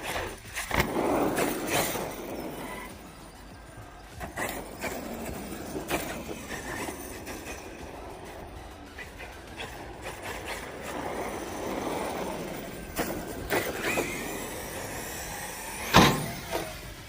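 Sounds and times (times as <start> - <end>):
electric motor whining: 0.0 - 17.0
toy truck landing knocks: 15.8 - 16.7.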